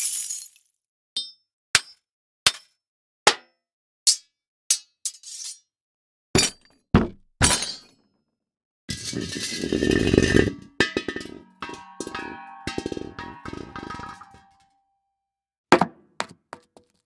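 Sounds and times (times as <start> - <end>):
clinking and clanging impacts: 8.9 - 14.6.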